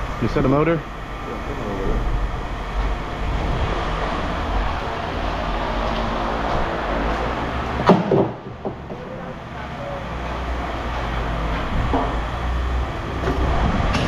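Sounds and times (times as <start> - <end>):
engine rumbling: 0.0 - 14.0
sharp knocks: 7.8 - 9.0.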